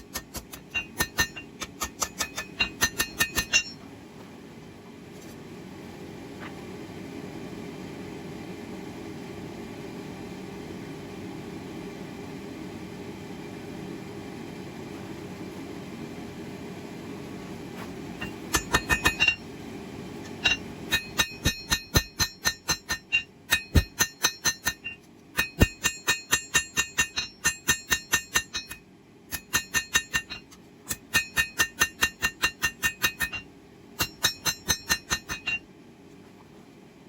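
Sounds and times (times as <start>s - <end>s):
hammer striking steel on anvil: 0.0s - 3.8s, 18.2s - 19.5s, 20.2s - 35.6s.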